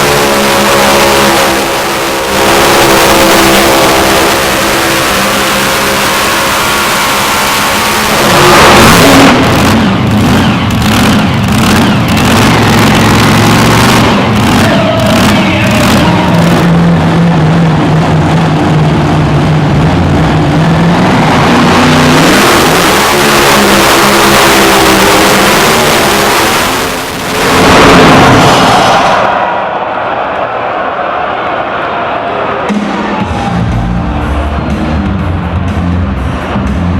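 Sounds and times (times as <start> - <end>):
tractor engine revving: 0.0 - 30.6, 31.8 - 36.9.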